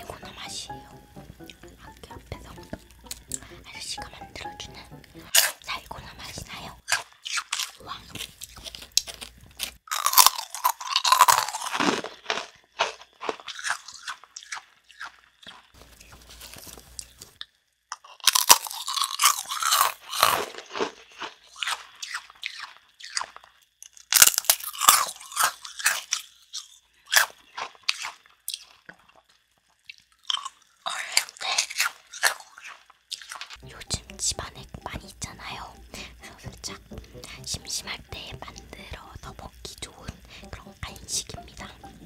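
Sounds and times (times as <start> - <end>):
crunching and chewing toffee: 5.3 - 34.1.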